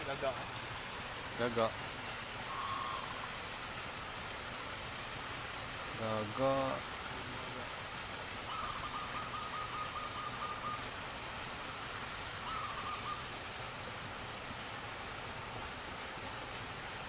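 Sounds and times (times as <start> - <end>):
steady background hiss: 0.0 - 17.0
bird trilling call: 2.5 - 3.3, 8.5 - 11.0, 12.4 - 13.3.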